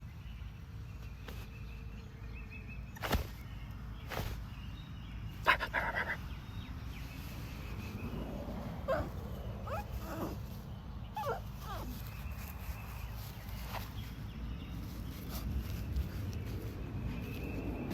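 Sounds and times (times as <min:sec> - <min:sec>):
puppy crying: 0:08.8 - 0:10.5, 0:11.1 - 0:12.0.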